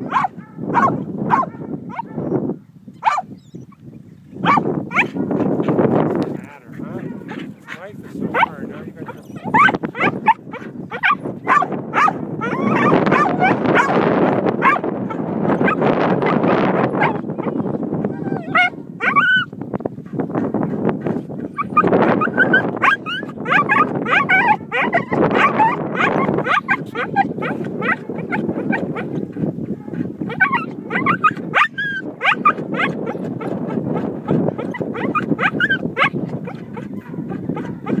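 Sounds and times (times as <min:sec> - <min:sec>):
dog yipping and whining: 0:03.0 - 0:03.8, 0:09.1 - 0:13.9, 0:16.9 - 0:19.5, 0:21.6 - 0:28.7, 0:30.3 - 0:33.2, 0:34.6 - 0:36.1.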